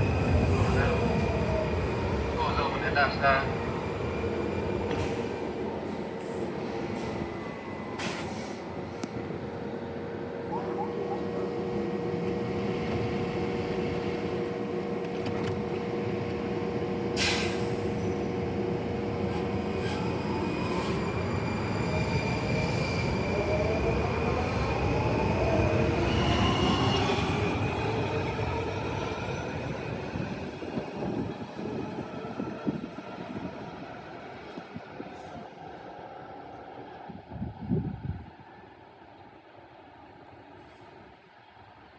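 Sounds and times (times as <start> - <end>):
wheels squealing on rails: 19.3 - 23.6.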